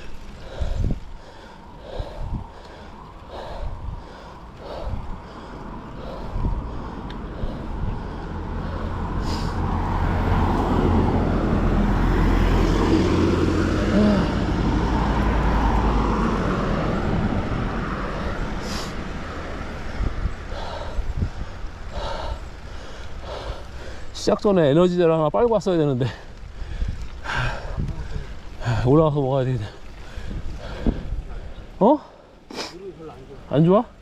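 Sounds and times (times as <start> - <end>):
vehicle passing on road: 0.0 - 34.0.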